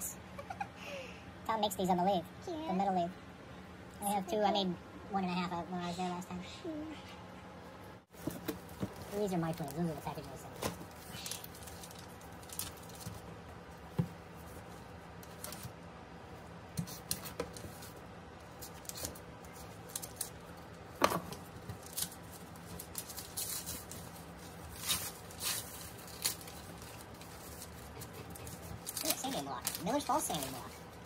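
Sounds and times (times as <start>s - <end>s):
wrapping rustling: 8.1s - 15.7s, 16.9s - 20.7s, 21.4s - 31.0s.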